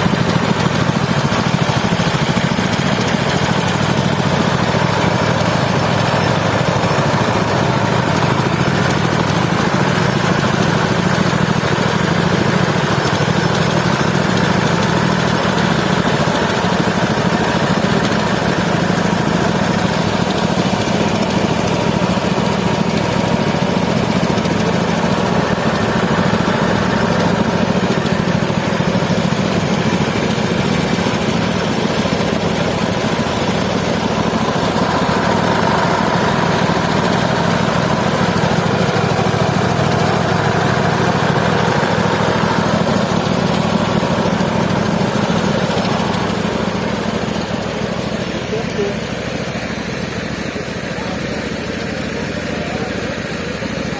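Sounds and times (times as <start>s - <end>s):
sawmill engine running: 0.0s - 53.9s.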